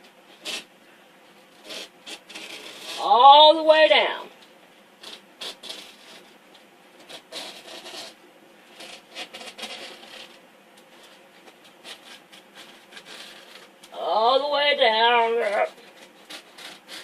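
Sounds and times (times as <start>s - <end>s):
knife scraping a metal frame: 1.5s - 3.0s, 7.0s - 10.4s, 11.0s - 13.7s, 15.2s - 17.0s.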